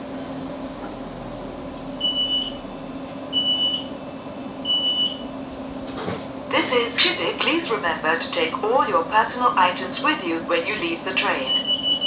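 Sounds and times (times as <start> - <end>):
train equipment hum: 0.0 - 12.0
train door warning beeps: 2.0 - 2.7, 3.3 - 4.0, 4.6 - 5.4, 6.6 - 12.0.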